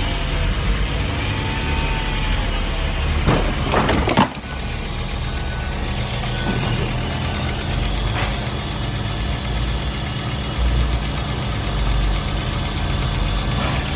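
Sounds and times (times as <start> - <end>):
car engine idling: 2.1 - 13.9
sharp clunk: 3.2 - 4.6.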